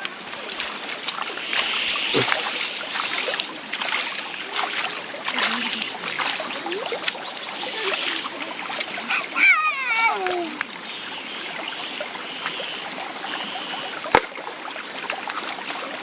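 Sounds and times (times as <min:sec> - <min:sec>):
children splashing water: 0:00.0 - 0:10.9
stream running: 0:00.0 - 0:16.0
faint voices: 0:02.1 - 0:02.5, 0:04.5 - 0:10.8.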